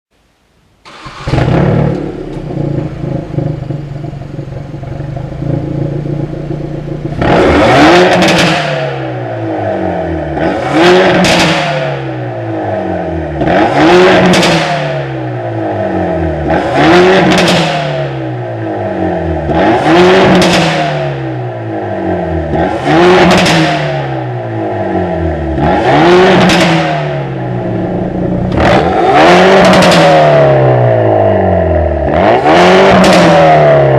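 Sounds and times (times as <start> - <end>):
car engine starting and idling: 0.5 - 33.9
exhaust popping and crackling: 0.8 - 9.1, 13.4 - 14.9, 25.5 - 31.1
engine revving: 0.9 - 33.9.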